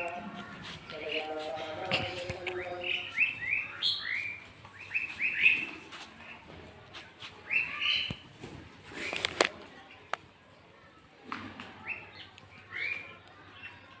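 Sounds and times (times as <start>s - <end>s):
small birds chirping: 0.0s - 6.6s, 7.2s - 8.3s, 11.8s - 14.0s.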